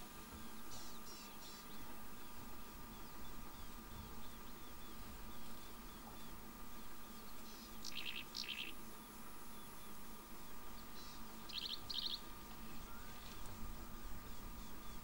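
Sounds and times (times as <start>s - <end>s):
bird calling with pulsed notes: 0.3s - 15.0s.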